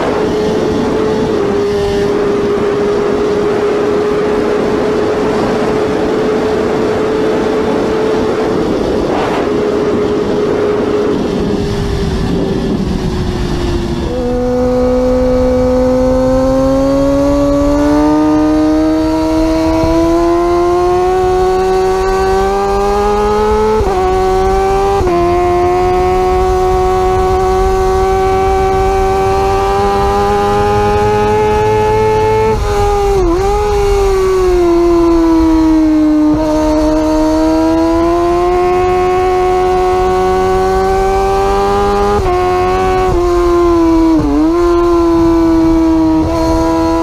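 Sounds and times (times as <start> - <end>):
gear change: 0.0 - 47.0
motorcycle engine at high revs: 0.0 - 47.0
wind rushing: 0.0 - 47.0.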